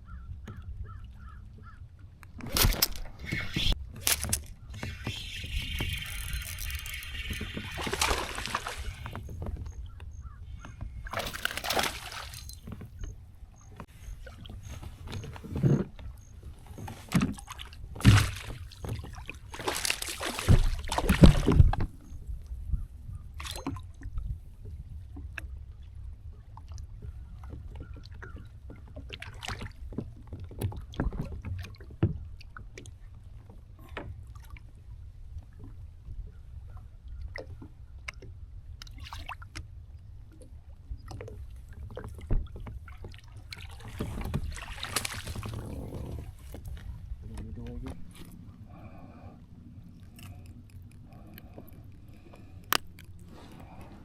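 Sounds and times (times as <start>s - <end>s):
kayak gear knocks and clicks: 2.2s - 22.8s, 49.9s - 54.0s
water splashing: 2.4s - 9.5s, 11.0s - 12.7s, 17.0s - 21.8s, 41.9s - 48.4s.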